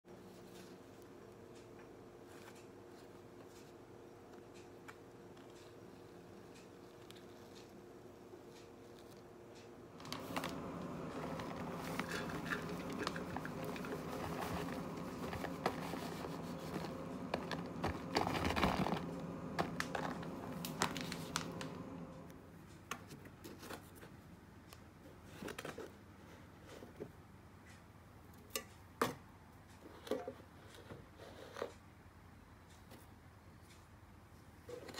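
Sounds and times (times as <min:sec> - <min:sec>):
spoon scraping plastic tub: 0:10.0 - 0:21.9
paper bag rustling and crinkling: 0:10.0 - 0:22.2.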